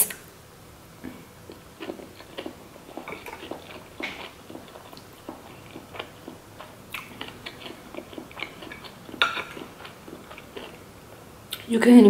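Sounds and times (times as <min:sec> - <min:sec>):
wet chewing sounds: 0:01.4 - 0:10.8.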